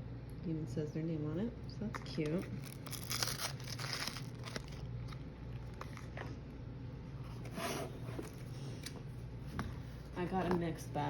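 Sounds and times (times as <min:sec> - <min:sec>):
packaging rustling and scraping: 0:02.6 - 0:06.1.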